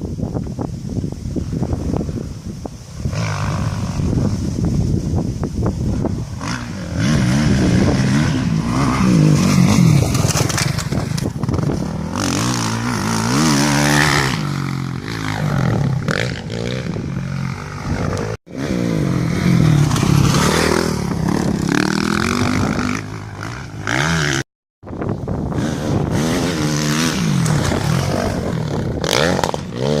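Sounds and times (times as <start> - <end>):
rushing scraping noise: 2.9 - 24.4
motocross engine revving: 6.4 - 24.4, 25.4 - 30.0.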